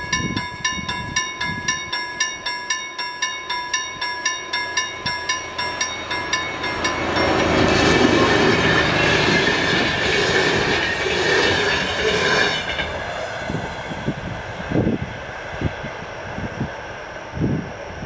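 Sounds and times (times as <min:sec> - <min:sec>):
level-crossing warning bell: 0:00.0 - 0:13.0
train wheels rumbling on rails: 0:00.0 - 0:18.0.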